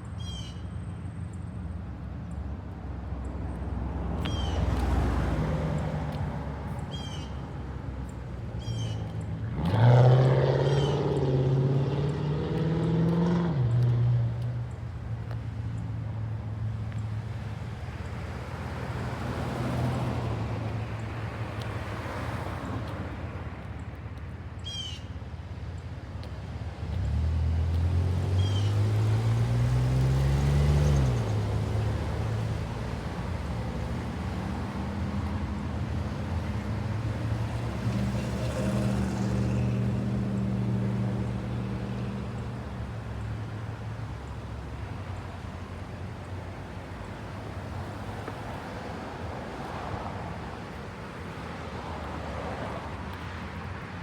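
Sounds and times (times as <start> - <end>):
low traffic rumble: 0.0 - 54.0
vehicle engine speeding up: 9.5 - 14.6.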